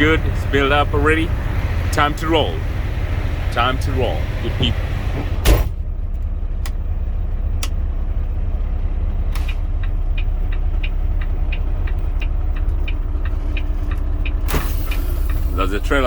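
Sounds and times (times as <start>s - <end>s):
diesel engine idling: 0.0s - 16.0s
light rhythmic clicks: 9.4s - 15.5s.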